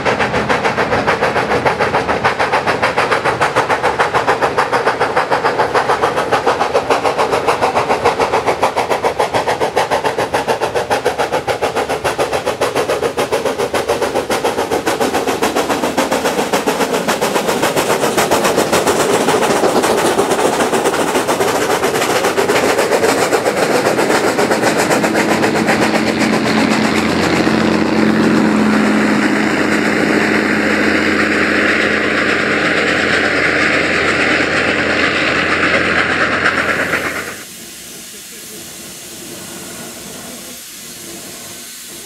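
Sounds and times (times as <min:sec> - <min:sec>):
steam locomotive exhaust beats: 0:00.0 - 0:42.0
diesel engine drone: 0:17.6 - 0:40.6.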